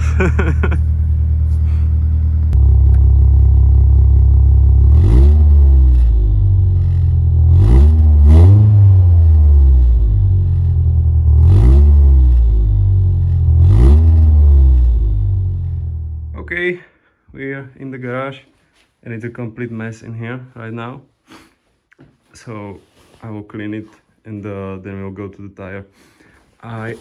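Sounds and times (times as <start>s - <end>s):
car engine idling: 0.0s - 16.4s
engine throttle blips: 0.0s - 16.4s.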